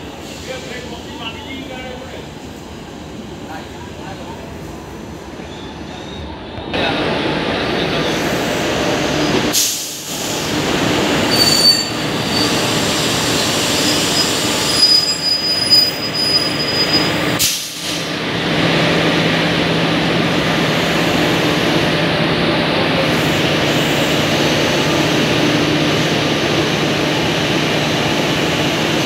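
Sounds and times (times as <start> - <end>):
wheels squealing on rails: 5.3 - 6.7, 11.0 - 17.7.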